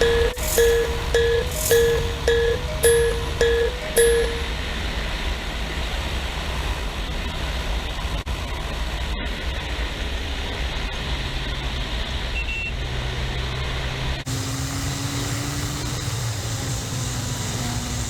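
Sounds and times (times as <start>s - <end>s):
high beep: 0.0s - 4.7s
motorcycle engine cruising: 14.3s - 18.0s.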